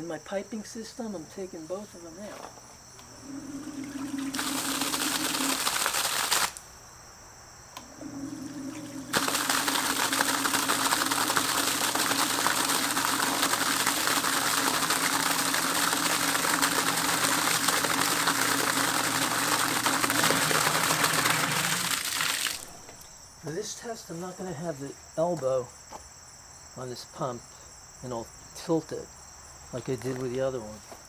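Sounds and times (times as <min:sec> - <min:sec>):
sump pump motor humming: 0:03.0 - 0:06.6, 0:07.8 - 0:23.0
water rushing and splashing: 0:03.2 - 0:06.5, 0:08.0 - 0:22.8.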